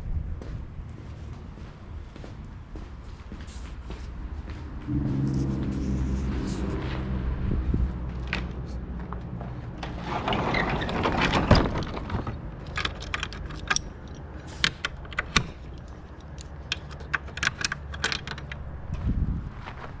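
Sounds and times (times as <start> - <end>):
engine low rumble: 0.0 - 20.0
sharp clicks and rattles: 9.8 - 18.8.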